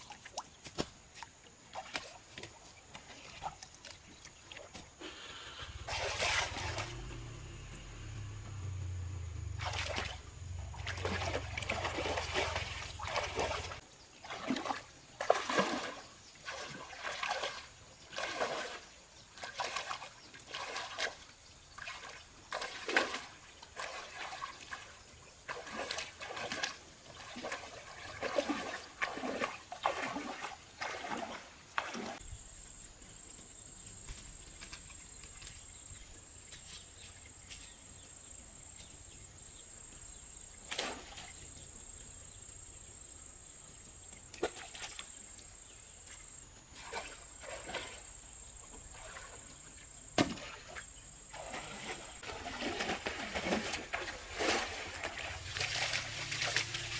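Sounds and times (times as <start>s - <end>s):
water splashing: 4.4s - 32.2s, 46.7s - 49.6s, 50.2s - 56.9s
high insect drone: 5.0s - 13.8s.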